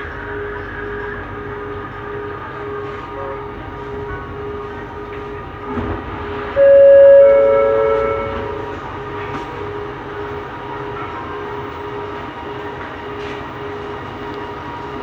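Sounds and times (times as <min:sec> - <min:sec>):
train running with motor whine: 0:00.0 - 0:15.0
two-tone train horn: 0:02.5 - 0:12.1.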